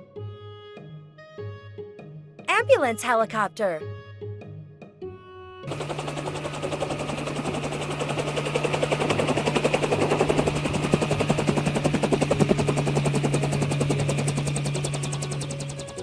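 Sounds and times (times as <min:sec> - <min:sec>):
helicopter engine hum: 0:05.7 - 0:16.0
helicopter rotor chop: 0:05.7 - 0:16.0.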